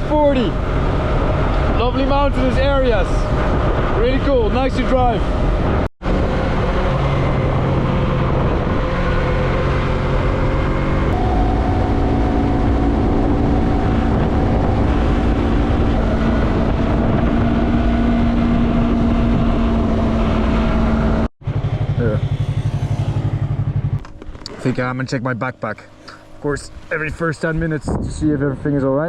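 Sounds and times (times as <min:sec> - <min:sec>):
wind rush on microphone: 0:00.0 - 0:21.3, 0:26.6 - 0:29.0
motorcycle engine running: 0:05.3 - 0:27.6.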